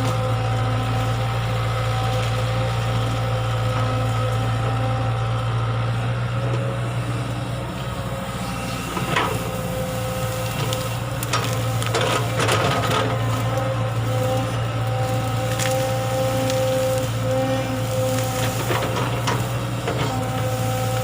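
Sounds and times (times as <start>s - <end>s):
excavator engine running: 0.0s - 21.0s
bucket scraping earth and stone: 10.4s - 21.0s.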